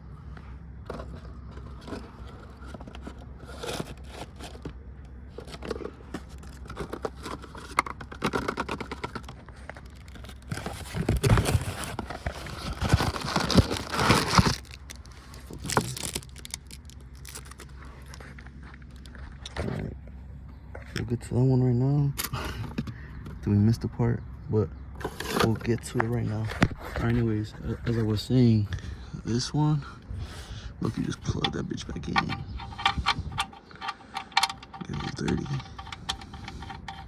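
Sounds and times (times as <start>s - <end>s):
hands handling tools and parts: 0.3s - 19.6s, 30.8s - 37.0s.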